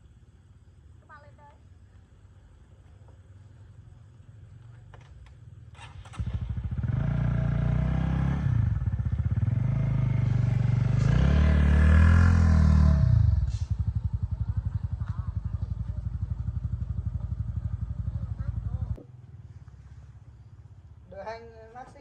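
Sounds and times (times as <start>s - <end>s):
motorbike engine revving and idling: 4.6s - 21.2s.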